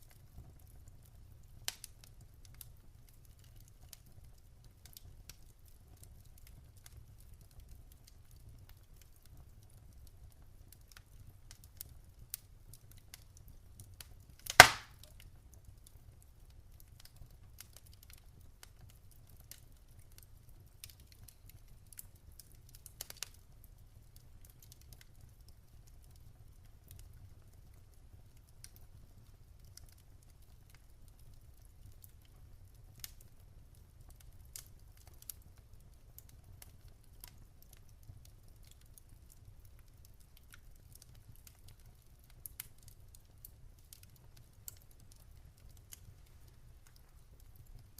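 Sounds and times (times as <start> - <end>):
low fire rumble: 0.0 - 47.9
wood fire crackling: 0.0 - 47.9
loud sharp pop: 14.5 - 15.0.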